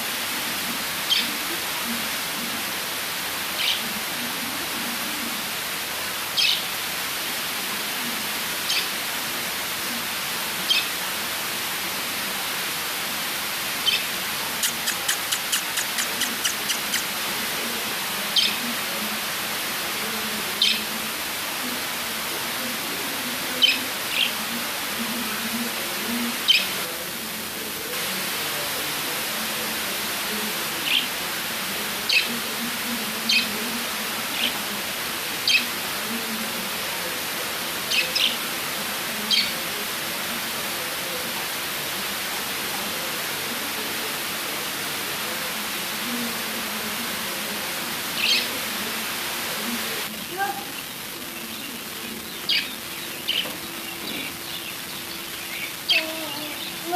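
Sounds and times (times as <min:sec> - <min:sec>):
steady hiss: 0:00.0 - 0:56.9
lovebirds chirping: 0:01.0 - 0:01.5, 0:06.3 - 0:06.7, 0:13.8 - 0:17.4, 0:23.5 - 0:24.5, 0:26.1 - 0:26.9, 0:48.2 - 0:48.6, 0:50.2 - 0:56.9.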